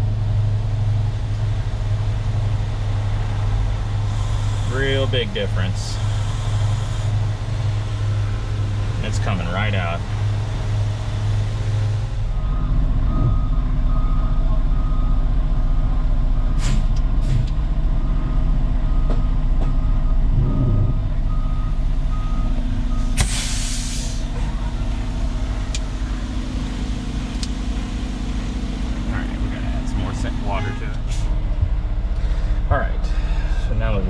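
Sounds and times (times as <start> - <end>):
diesel truck engine running: 0.0 - 34.0
reversing alarm beeping: 12.4 - 16.6, 18.0 - 25.1
air brake hiss: 16.6 - 17.4, 23.0 - 24.3, 31.1 - 31.3.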